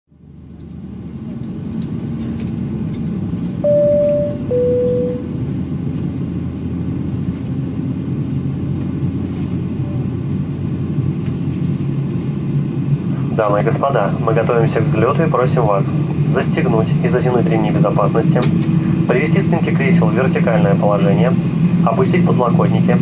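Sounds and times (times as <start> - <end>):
airliner cabin rumble: 0.2 - 23.0
two-tone descending chime: 3.6 - 5.3.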